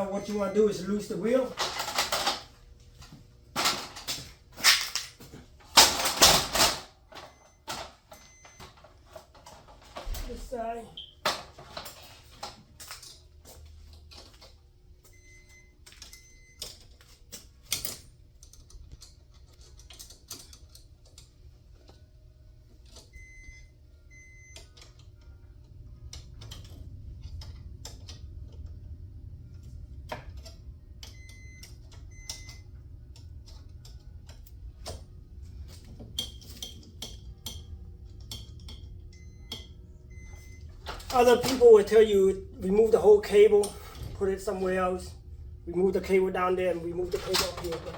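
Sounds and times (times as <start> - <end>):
low rumble: 25.2 - 36.2, 43.8 - 46.1.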